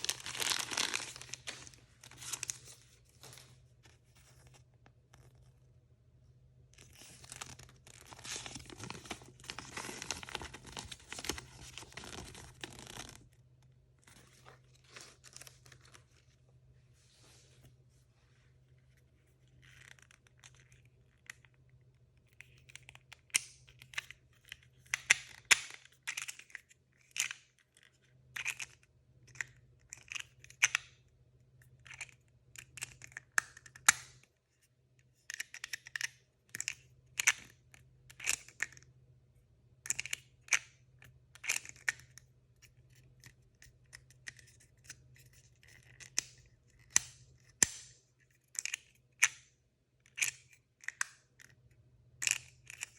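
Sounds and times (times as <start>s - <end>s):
packaging tearing and crinkling: 0.0s - 2.7s, 7.0s - 13.2s.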